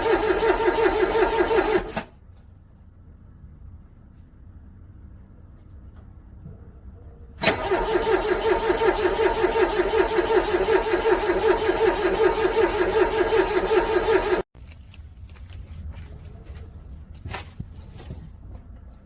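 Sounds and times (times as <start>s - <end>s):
car starter cranking engine: 0.0s - 2.2s, 7.4s - 14.4s.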